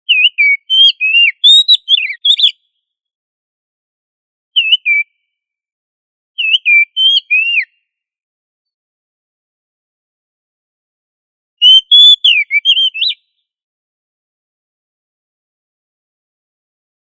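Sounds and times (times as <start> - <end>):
bird singing whistled song: 0.1 - 2.8, 4.6 - 5.4, 6.4 - 7.9, 11.6 - 13.4.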